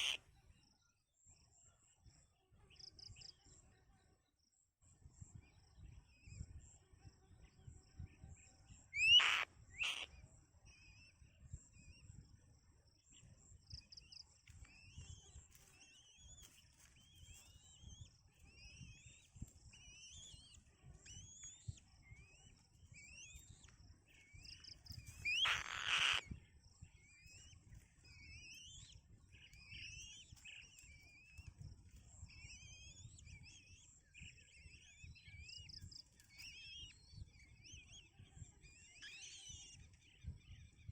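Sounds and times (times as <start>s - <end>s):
loud bird calls: 0.0s - 0.2s, 9.0s - 10.2s, 19.8s - 26.5s
faint rising bird chirps: 14.7s - 40.9s.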